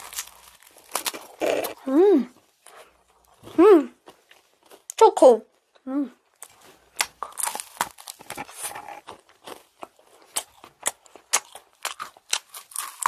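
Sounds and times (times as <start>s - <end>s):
macaron crunching: 0.0s - 1.9s, 6.4s - 13.0s.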